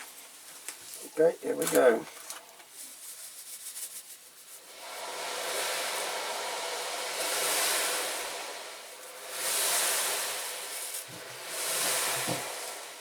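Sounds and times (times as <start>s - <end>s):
chemical bath fizzing: 4.5s - 13.0s.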